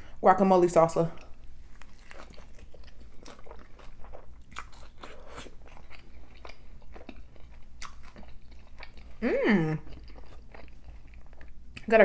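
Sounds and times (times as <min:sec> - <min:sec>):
crunching taco in mouth: 0:01.6 - 0:09.2.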